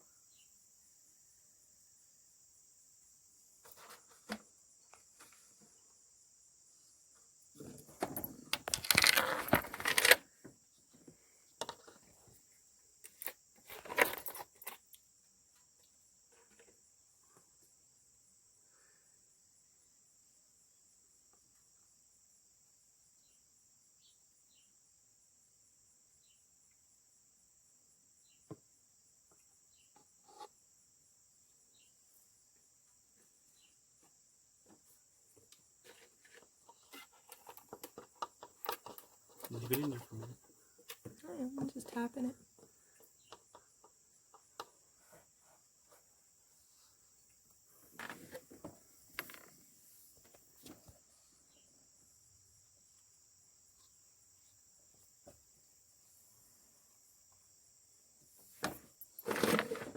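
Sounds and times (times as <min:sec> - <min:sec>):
insects chirring: 0:00.0 - 0:59.9
rustle: 0:03.2 - 0:06.2, 0:58.2 - 0:59.9
small clicks and knocks: 0:08.0 - 0:10.2, 0:11.6 - 0:12.1, 0:35.5 - 0:41.2.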